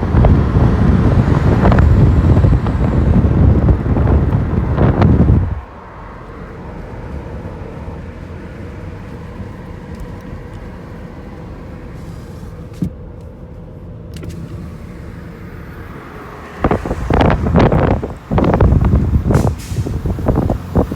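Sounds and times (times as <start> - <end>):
truck engine running: 0.0 - 12.0, 13.9 - 20.9.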